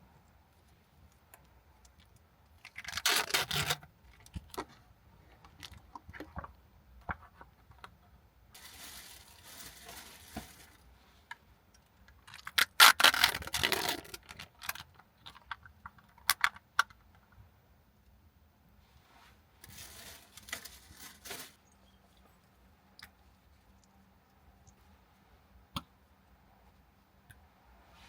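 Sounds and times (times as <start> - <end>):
rustling scrapes: 8.6 - 10.8, 18.8 - 21.6.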